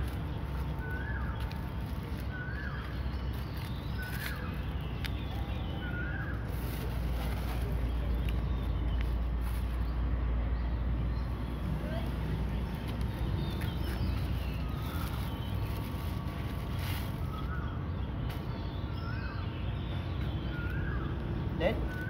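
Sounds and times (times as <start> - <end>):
bird chirping: 0.0 - 22.0.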